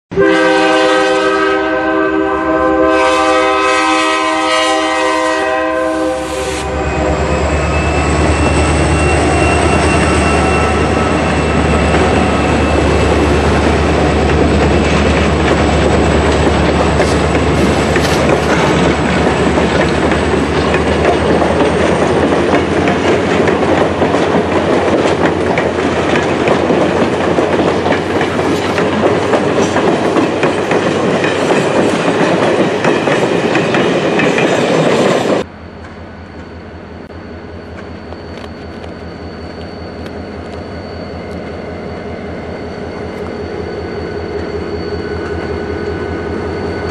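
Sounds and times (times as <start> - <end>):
diesel locomotive engine: 0.1 - 46.9
high-pitched wheel squeal: 5.7 - 24.6, 36.2 - 46.9
wheels clacking over rail joints: 9.9 - 35.5.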